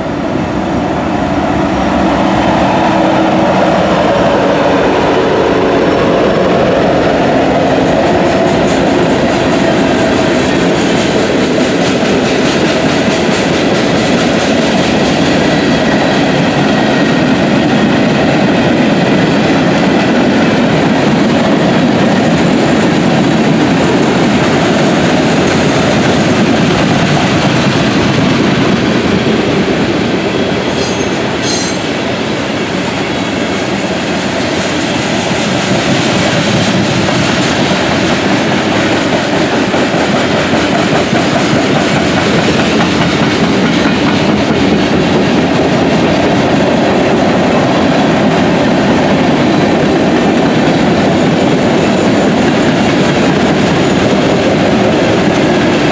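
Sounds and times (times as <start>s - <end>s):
train wheels clacking on rail joints: 6.4s - 55.9s
high wheel squeal: 30.6s - 32.2s.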